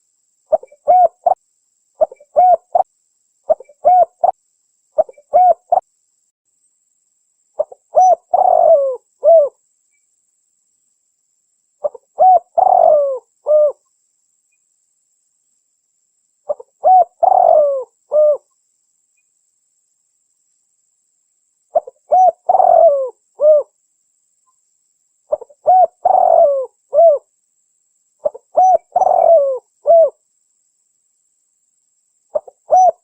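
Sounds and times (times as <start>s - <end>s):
dove cooing: 0.5s - 1.4s, 2.0s - 2.9s, 3.5s - 4.4s, 5.0s - 5.8s, 7.6s - 9.6s, 11.8s - 13.8s, 16.5s - 18.4s, 21.7s - 23.7s, 25.3s - 27.3s, 28.2s - 30.2s, 32.3s - 33.0s.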